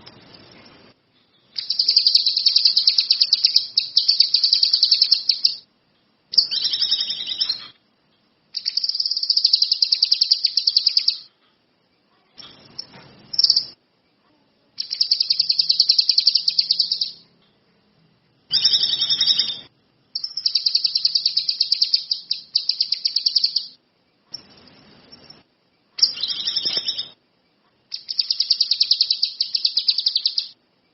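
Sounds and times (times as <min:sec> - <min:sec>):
songbird trilling: 0:01.6 - 0:05.6, 0:06.3 - 0:07.7, 0:08.6 - 0:11.3, 0:14.8 - 0:17.2, 0:18.5 - 0:23.8, 0:26.0 - 0:27.2, 0:27.9 - 0:30.6.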